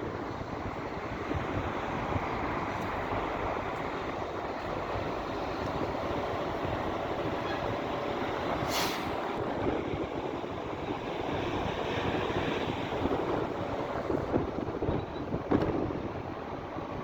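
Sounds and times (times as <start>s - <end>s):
short hiss: 8.7s - 9.2s.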